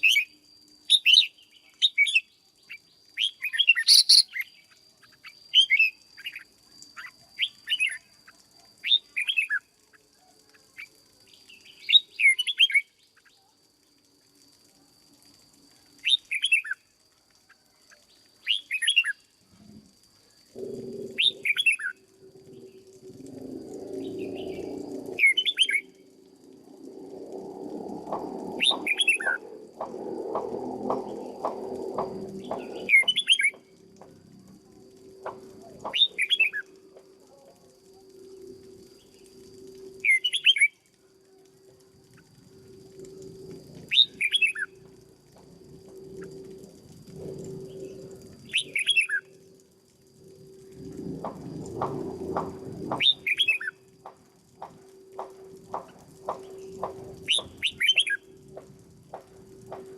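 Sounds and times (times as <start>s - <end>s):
faint high whine: 0.0s - 59.9s
bird chirping: 3.2s - 6.4s, 56.4s - 58.2s
low rough rumbling hum: 20.5s - 37.2s, 44.7s - 59.9s.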